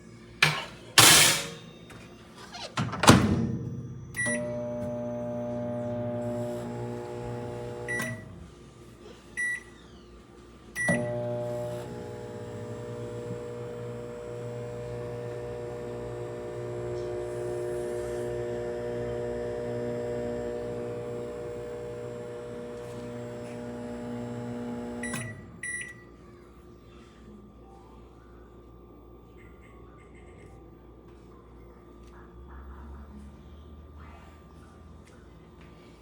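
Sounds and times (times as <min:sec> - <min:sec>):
microwave oven humming: 0:01.4 - 0:34.1
microwave keypad beeps: 0:25.0 - 0:26.0.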